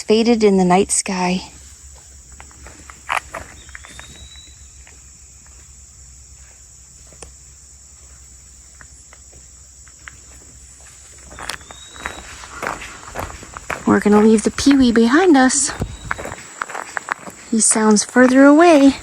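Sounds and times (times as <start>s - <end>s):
high-pitched insect chorus: 0.0s - 19.0s
light footsteps on forest floor: 1.4s - 19.0s
bird slurred whistle: 3.5s - 4.8s, 11.3s - 12.7s.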